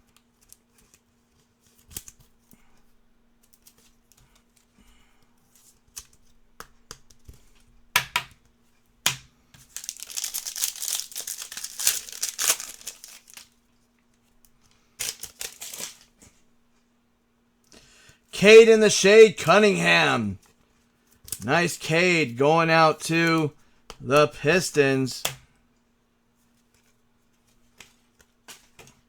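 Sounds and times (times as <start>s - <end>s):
foil wrapper crinkling and tearing: 9.6s - 13.6s, 15.0s - 16.1s.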